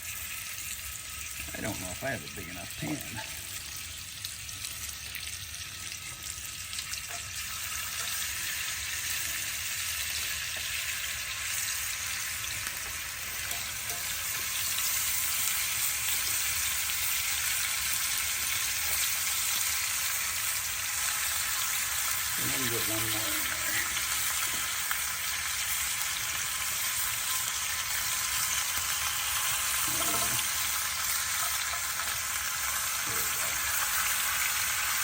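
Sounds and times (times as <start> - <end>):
meat sizzling in a pan: 0.0 - 35.0.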